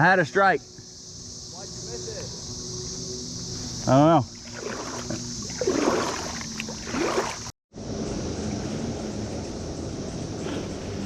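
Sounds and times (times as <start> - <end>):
cicada chorus drone: 0.0 - 11.0
water: 4.3 - 7.5.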